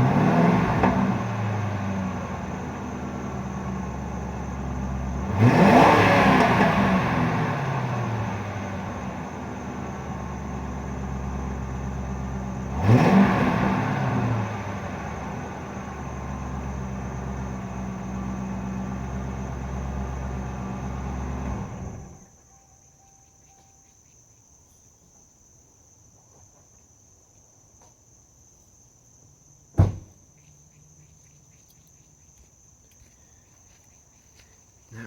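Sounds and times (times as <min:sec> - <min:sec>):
car engine running: 0:00.0 - 0:22.2
crickets chirping: 0:00.0 - 0:35.0
sharp thump: 0:29.7 - 0:30.2.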